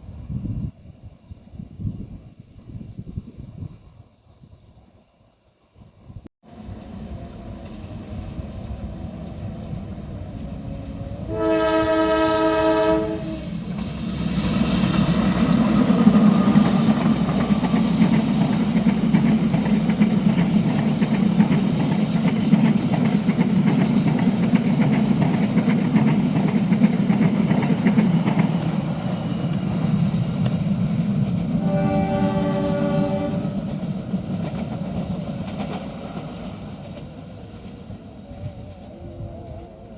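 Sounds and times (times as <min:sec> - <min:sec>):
train rumble and clatter: 0:06.5 - 0:39.9
train horn blast: 0:11.2 - 0:13.6, 0:31.6 - 0:33.7.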